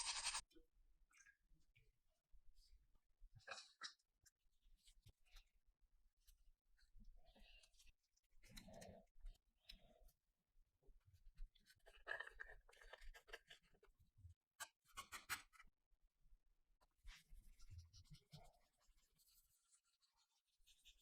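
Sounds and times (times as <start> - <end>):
faint scratching and rubbing: 0.0 - 0.4, 17.0 - 21.0.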